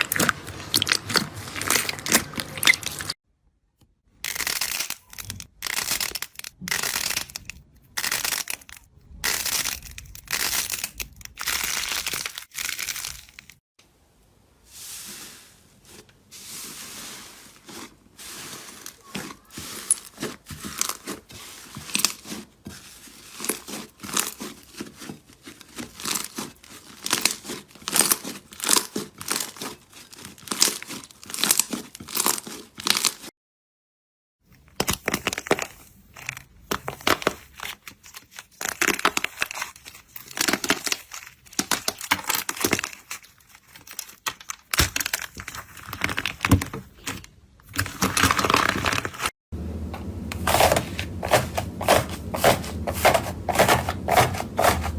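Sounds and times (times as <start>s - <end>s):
slime squelching wet crackles: 0.0s - 3.2s, 17.6s - 33.3s.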